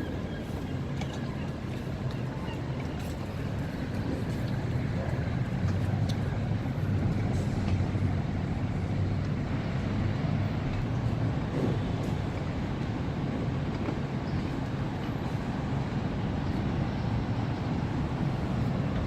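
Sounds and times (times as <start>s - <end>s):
low engine rumble: 0.0s - 19.0s.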